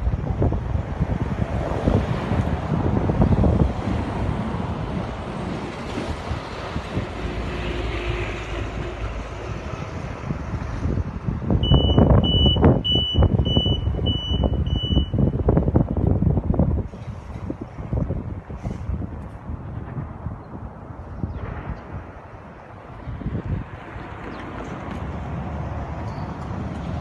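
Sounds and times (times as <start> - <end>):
road noise: 0.0 - 27.0
wind rumble on microphone: 0.0 - 27.0
vehicle reversing alarm beeps: 11.6 - 15.6.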